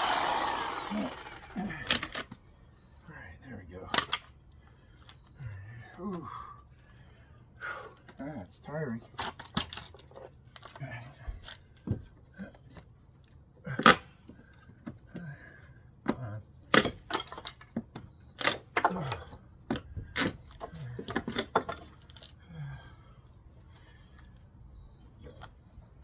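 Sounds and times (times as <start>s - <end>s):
wood cracking and splintering: 0.0s - 2.2s.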